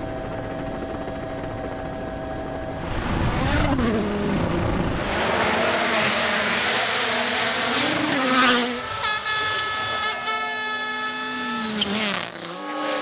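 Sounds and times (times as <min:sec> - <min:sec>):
gravel and tyre noise: 0:01.3 - 0:13.0
car passing with loud rush: 0:02.9 - 0:13.0
rally car engine revving: 0:03.0 - 0:13.0
horn-like held tone: 0:08.5 - 0:13.0.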